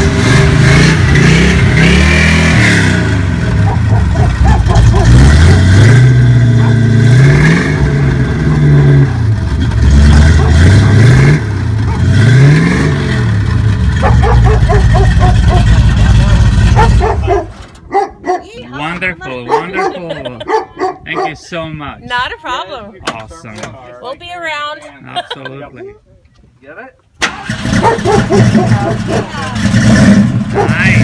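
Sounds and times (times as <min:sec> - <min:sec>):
car engine revving: 0:00.0 - 0:17.8, 0:27.2 - 0:31.0.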